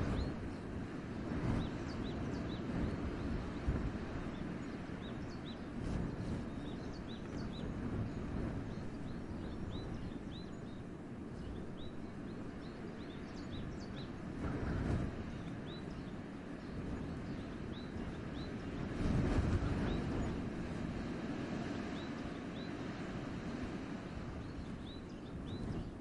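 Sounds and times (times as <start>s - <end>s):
wind blowing in a forest: 0.0s - 26.0s.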